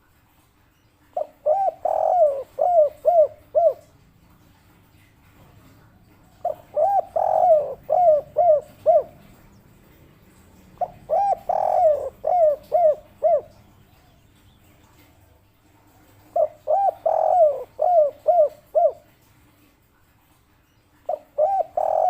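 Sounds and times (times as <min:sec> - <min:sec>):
dove cooing: 0:01.1 - 0:04.4, 0:06.0 - 0:19.2, 0:21.0 - 0:22.0.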